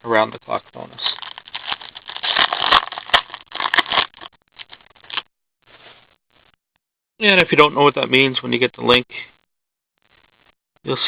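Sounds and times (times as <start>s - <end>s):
cards and plastic wrapping crinkling: 0.8s - 5.2s.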